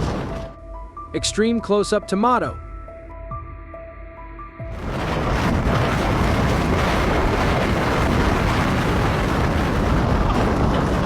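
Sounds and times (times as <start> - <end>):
deep rumble: 4.6 - 11.0
loud rushing noise: 4.7 - 11.0.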